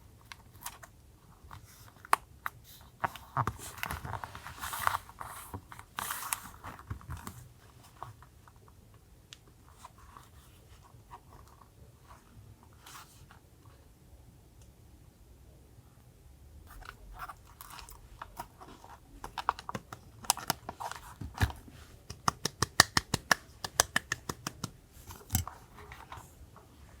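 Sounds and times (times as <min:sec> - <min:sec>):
paper handling clicks and taps: 0:19.2 - 0:25.6.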